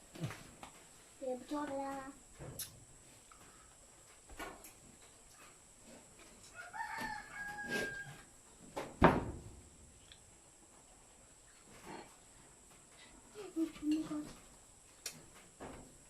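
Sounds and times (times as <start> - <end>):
rooster crowing: 6.4 - 8.3.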